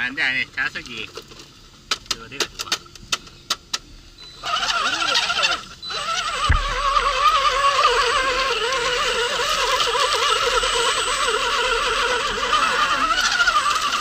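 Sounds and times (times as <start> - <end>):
toy car electric motor whine: 4.2 - 14.0.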